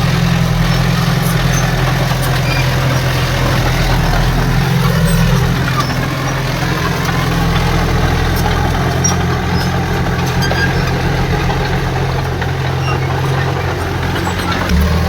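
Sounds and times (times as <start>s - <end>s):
heavy machine diesel engine running: 0.0s - 15.0s.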